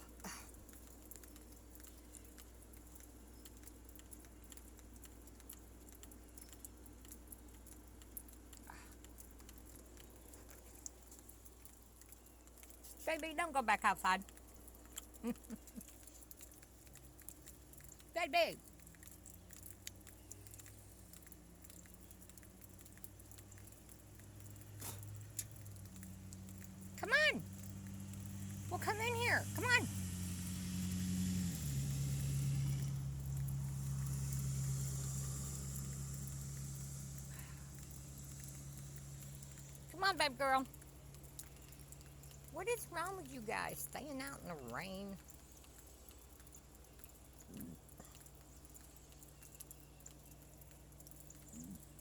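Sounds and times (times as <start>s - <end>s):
drops ticking: 0.0s - 52.0s
faint rain pattering: 0.0s - 52.0s
steady low hum: 19.6s - 42.6s.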